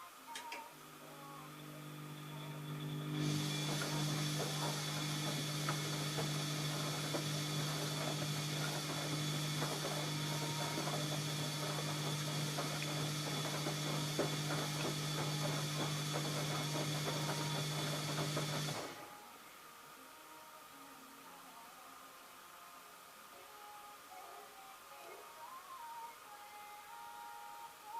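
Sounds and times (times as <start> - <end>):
high whine: 0.0 - 19.0
washing machine motor hum: 0.6 - 19.2.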